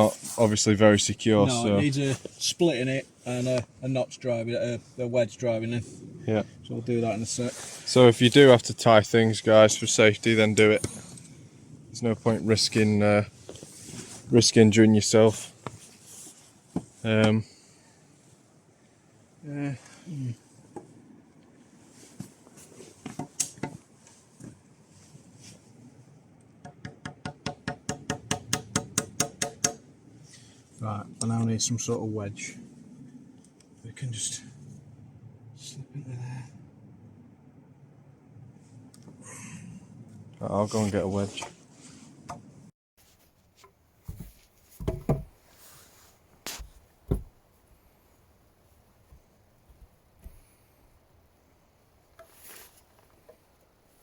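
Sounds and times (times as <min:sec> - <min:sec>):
faint handling noise: 0:12.6 - 0:14.4, 0:40.1 - 0:50.6, 0:52.1 - 0:54.0
scattered hammer knocks: 0:26.6 - 0:29.8
knocks and thumps on wood: 0:44.1 - 0:45.4, 0:46.6 - 0:47.4.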